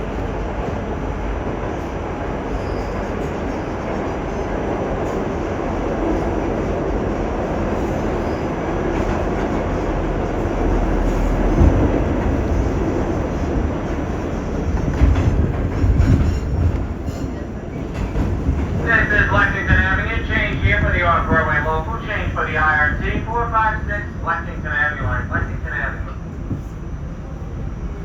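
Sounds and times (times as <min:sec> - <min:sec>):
subway train rumbling in tunnel: 0:00.0 - 0:28.0
train bumps: 0:07.8 - 0:23.5.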